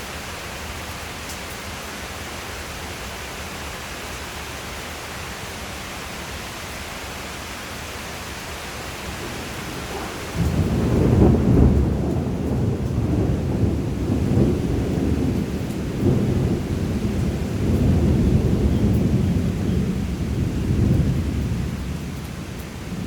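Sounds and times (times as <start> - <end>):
steady rain hissing: 0.0 - 23.0
thunderclap with rolling rumble: 8.8 - 23.0.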